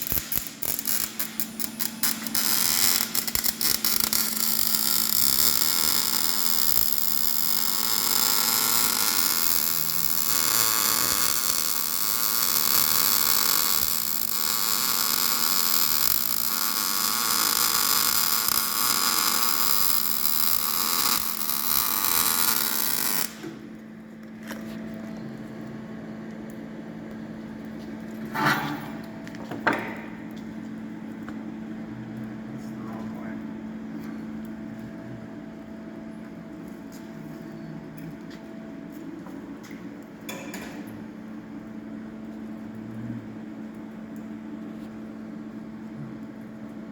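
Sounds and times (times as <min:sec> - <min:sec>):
arc welding crackling and hissing: 0:00.0 - 0:23.8
steady hum: 0:00.0 - 0:46.9.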